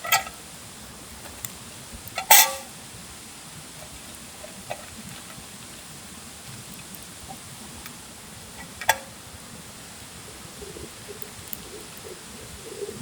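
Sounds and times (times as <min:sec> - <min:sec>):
steady background hiss: 0:00.0 - 0:13.0
cookware metallic clank: 0:02.2 - 0:02.7
faint ticks: 0:10.7 - 0:13.0.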